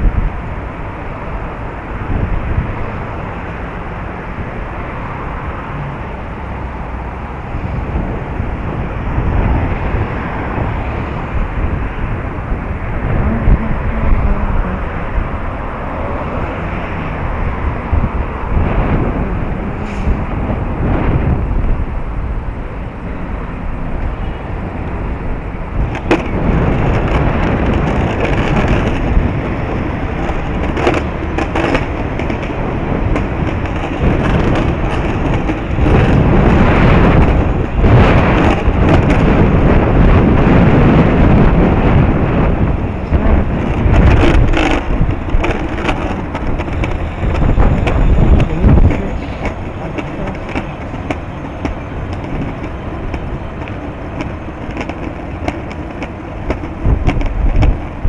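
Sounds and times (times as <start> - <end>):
ride rumble: 0.0 - 58.0
wind buffeting microphone: 0.0 - 58.0
sharp clicks and knocks: 25.8 - 29.2, 30.2 - 36.2, 43.0 - 58.0.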